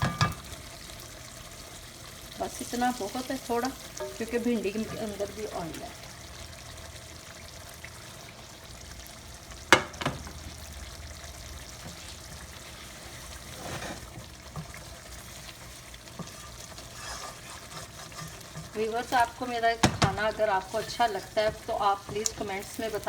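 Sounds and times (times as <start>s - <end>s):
chicken sizzling in oil: 0.0s - 23.0s
brief scrape: 16.3s - 18.3s.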